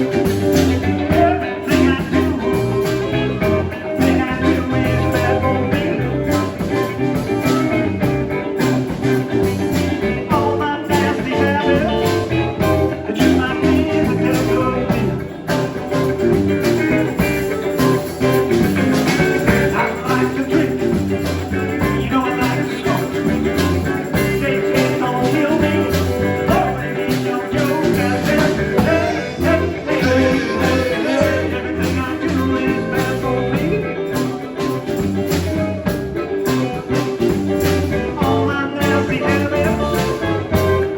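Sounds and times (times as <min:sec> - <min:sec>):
guitar: 0:00.0 - 0:40.9
live blues band: 0:00.0 - 0:40.9.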